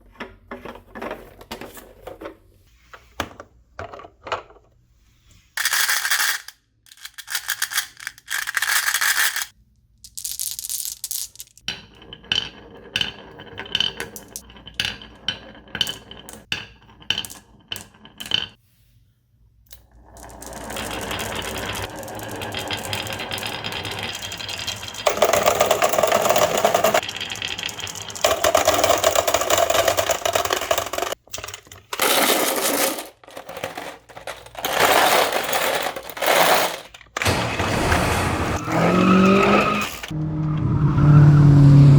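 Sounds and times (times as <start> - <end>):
marbles clattering and rolling: 5.6 - 18.6, 19.8 - 38.2.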